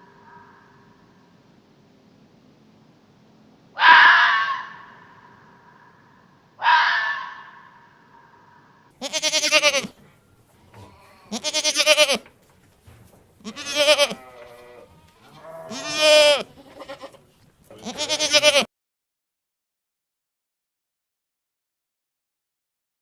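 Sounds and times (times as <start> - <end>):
animal bleating: 9.0 - 10.0, 10.6 - 12.3, 13.4 - 18.7.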